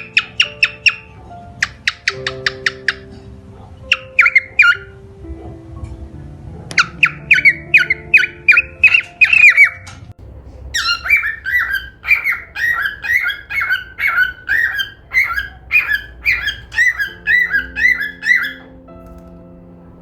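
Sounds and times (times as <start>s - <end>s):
soft background music: 0.0s - 20.0s
cockatiel chirping: 10.4s - 18.8s.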